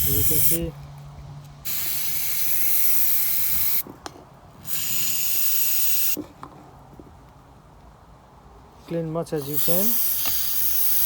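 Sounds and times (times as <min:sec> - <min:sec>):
aerosol spray hissing: 0:00.0 - 0:00.6, 0:01.7 - 0:03.8, 0:04.7 - 0:06.2, 0:09.4 - 0:11.0.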